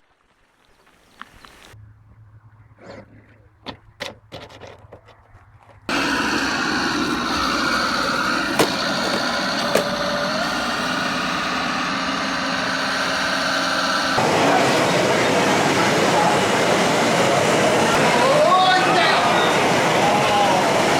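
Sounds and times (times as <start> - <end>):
small motor whirring: 5.9 - 14.2.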